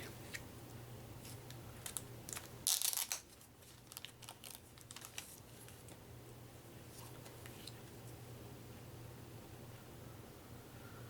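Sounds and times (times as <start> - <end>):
cards rustling: 1.2 - 6.0.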